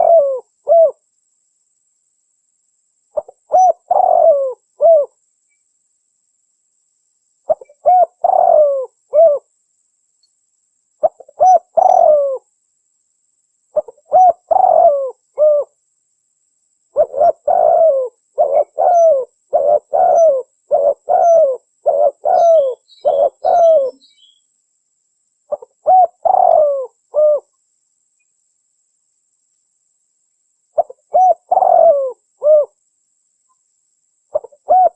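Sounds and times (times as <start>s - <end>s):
spotted dove cooing: 0.0s - 1.0s, 3.2s - 5.2s, 7.5s - 9.5s, 11.0s - 12.4s, 13.8s - 15.8s, 16.9s - 24.0s, 25.5s - 27.5s, 30.8s - 32.8s, 34.3s - 34.9s.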